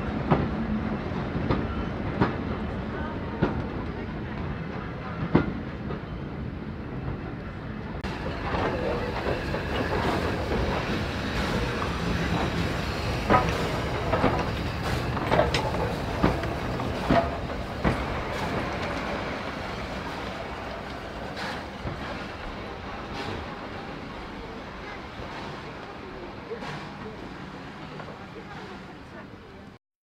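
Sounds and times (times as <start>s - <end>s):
train wheels rumbling on track: 0.0s - 29.8s
wheels clicking over rail joints: 8.0s - 29.5s.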